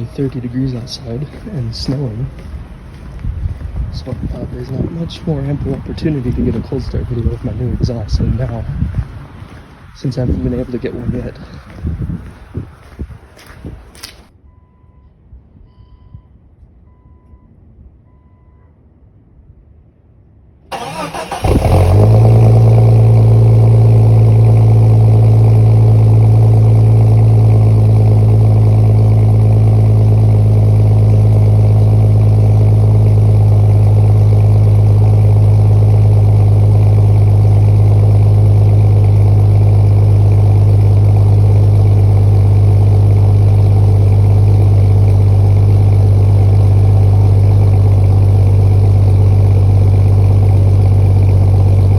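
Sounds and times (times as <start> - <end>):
car engine idling: 0.0 - 13.4, 20.7 - 51.9
faint beeps: 14.4 - 18.8
starter motor cranking: 20.7 - 23.4.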